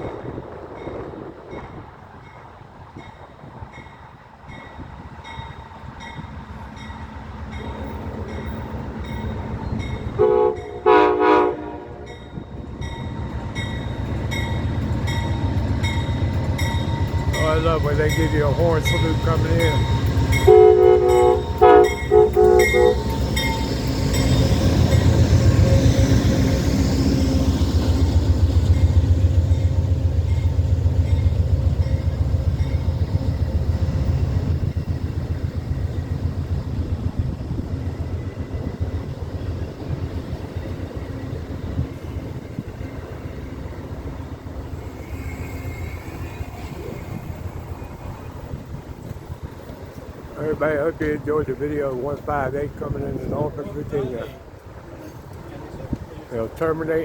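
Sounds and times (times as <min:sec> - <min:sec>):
train rumbling past: 0:00.0 - 0:57.0
train horn blasts: 0:10.1 - 0:12.4, 0:17.5 - 0:26.7.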